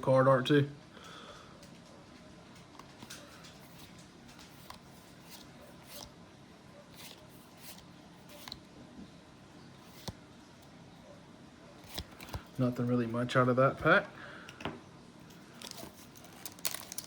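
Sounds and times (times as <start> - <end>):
trading cards being handled: 2.6 - 6.2, 6.9 - 8.7, 9.8 - 10.2, 11.8 - 12.6, 15.3 - 17.0.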